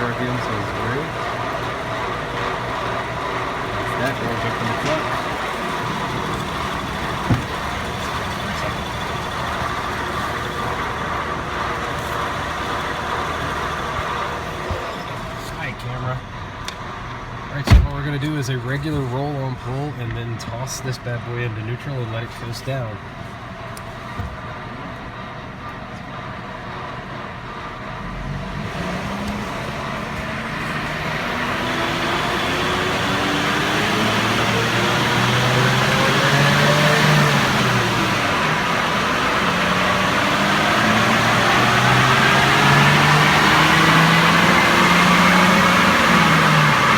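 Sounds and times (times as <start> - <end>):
truck engine running: 0.0 - 46.9
thump: 7.2 - 7.8, 17.7 - 18.0.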